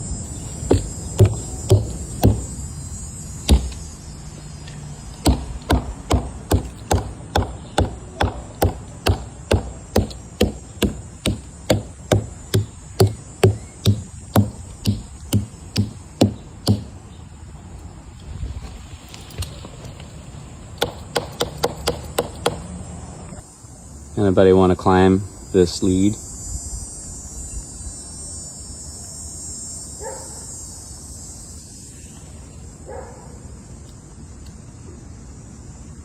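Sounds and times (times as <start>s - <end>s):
mallet striking tree trunk: 0.6s - 2.6s, 3.4s - 3.9s, 5.2s - 17.0s, 20.8s - 22.6s.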